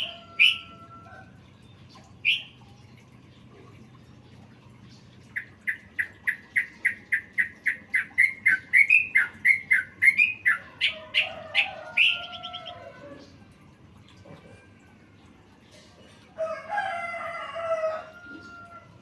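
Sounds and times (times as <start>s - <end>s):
songbird chirping: 0.0s - 14.2s.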